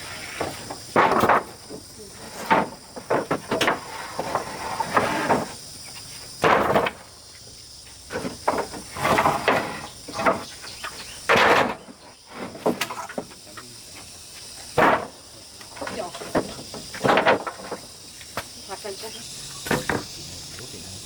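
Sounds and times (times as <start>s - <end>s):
knocking and scraping: 0.0s - 7.1s, 8.1s - 18.5s, 19.6s - 20.2s
insects chirring: 0.0s - 21.0s.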